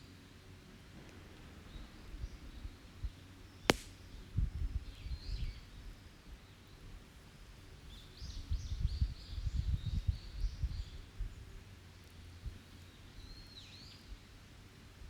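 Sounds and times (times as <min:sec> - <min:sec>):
burning wood popping: 0:03.7 - 0:04.0
campfire burning: 0:03.7 - 0:04.0.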